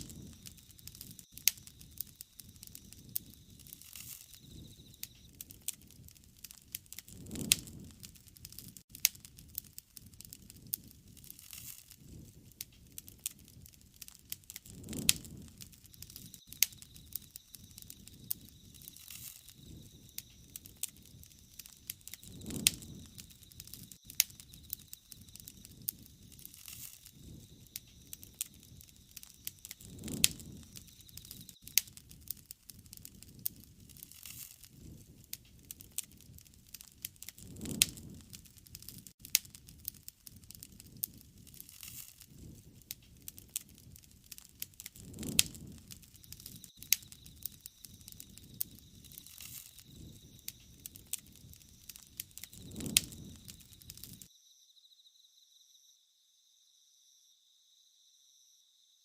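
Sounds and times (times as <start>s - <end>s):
faint high whine: 0.0s - 5.4s, 15.8s - 31.7s
low rush of flame: 0.0s - 54.3s
wood fire crackling and popping: 0.0s - 54.3s.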